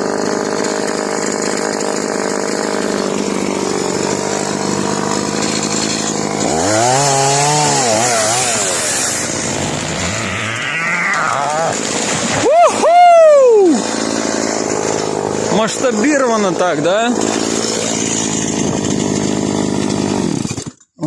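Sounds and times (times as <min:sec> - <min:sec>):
chainsaw cutting tree: 0:00.0 - 0:21.0.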